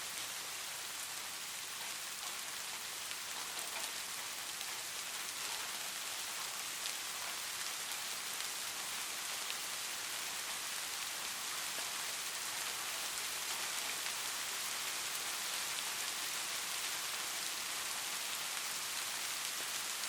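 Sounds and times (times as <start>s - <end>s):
light rain falling: 0.0s - 20.0s.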